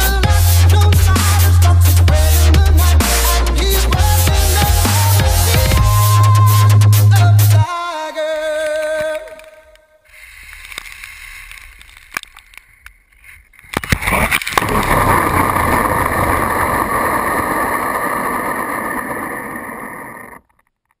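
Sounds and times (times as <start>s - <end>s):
rc truck motor rushing: 14.0s - 20.5s.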